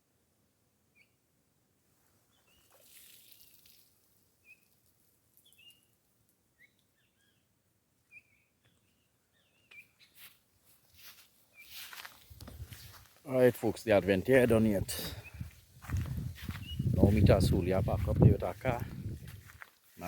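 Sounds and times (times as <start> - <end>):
faint bird chirps: 0.9 - 1.2, 2.2 - 3.7, 4.4 - 10.4, 11.5 - 11.9, 16.4 - 17.0.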